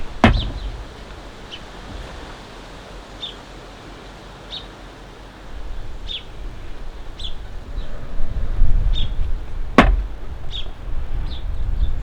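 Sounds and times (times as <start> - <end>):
low rumbling: 0.0 - 2.4, 7.7 - 11.1.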